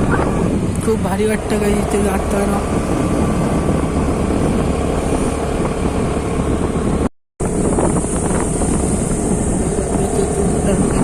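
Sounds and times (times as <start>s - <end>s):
motorcycle engine: 0.0s - 11.0s
road noise: 0.0s - 11.0s
wind buffeting microphone: 0.0s - 11.0s.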